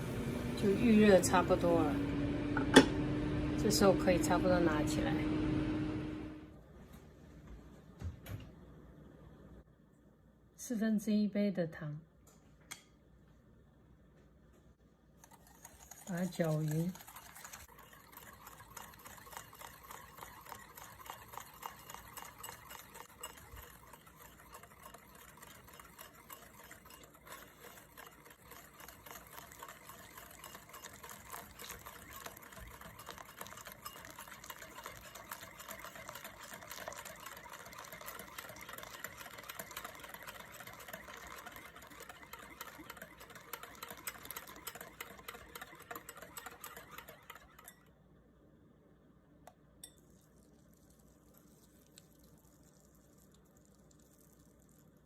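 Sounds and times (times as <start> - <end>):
whisk clicking in a bowl: 15.2 - 47.9.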